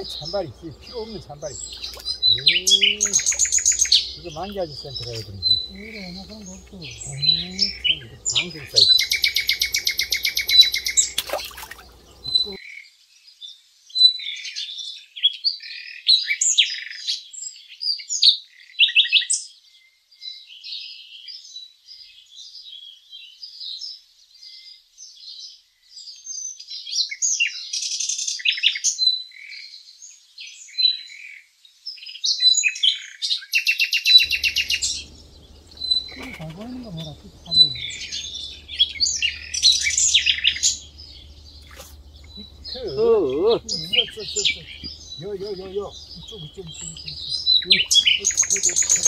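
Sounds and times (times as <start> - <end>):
small birds chirping: 0.0 - 12.6, 34.0 - 49.0
bird rattling trill: 0.8 - 4.6, 5.4 - 12.5, 34.3 - 42.8, 45.8 - 49.0.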